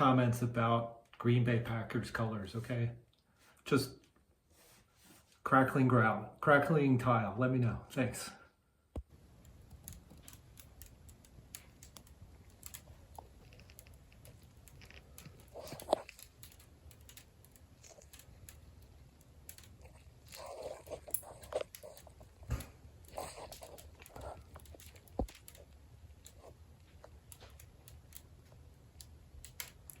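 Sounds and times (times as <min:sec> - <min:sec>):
tiles crackling with ticks and pops: 0:08.9 - 0:30.0.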